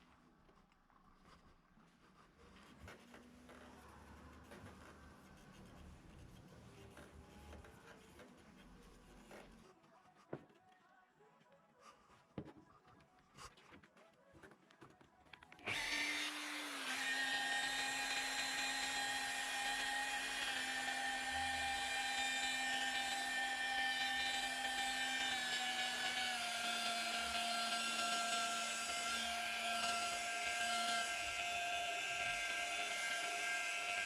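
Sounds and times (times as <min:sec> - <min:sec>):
rotary power tool whining: 0:15.6 - 0:34.0.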